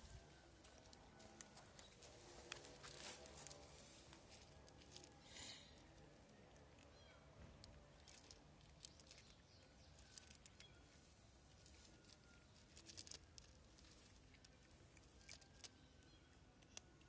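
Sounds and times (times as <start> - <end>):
cats crunching dry food: 0.5 - 17.0.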